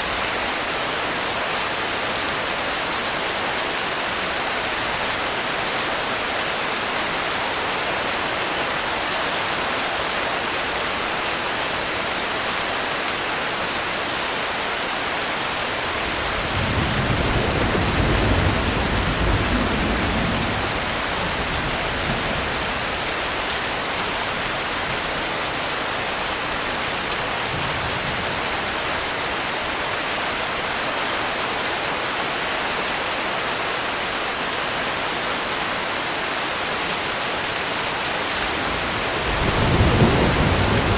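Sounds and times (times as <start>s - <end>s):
heavy rain: 0.0s - 40.9s
distant thunder rumble: 15.7s - 25.3s, 38.3s - 40.9s.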